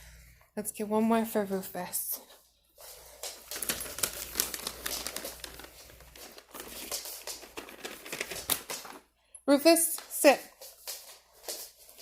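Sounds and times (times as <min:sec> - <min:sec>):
treat packet crinkling: 0:03.0 - 0:09.1.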